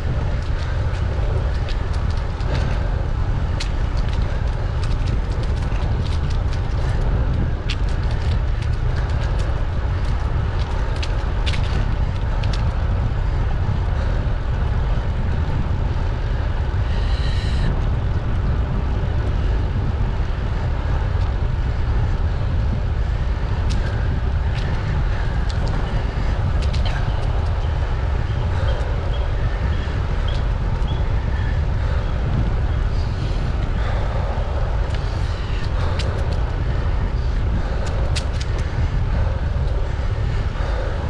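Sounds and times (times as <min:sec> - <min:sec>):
small clicks and rattles: 0:00.0 - 0:13.5, 0:23.6 - 0:32.1, 0:34.8 - 0:40.0
bicycle tyre rumble on road: 0:00.0 - 0:41.0
wind buffeting microphone: 0:00.0 - 0:41.0.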